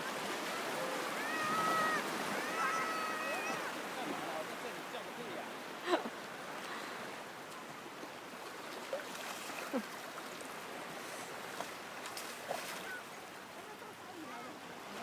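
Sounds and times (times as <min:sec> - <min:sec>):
sea surf washing: 0:00.0 - 0:06.0.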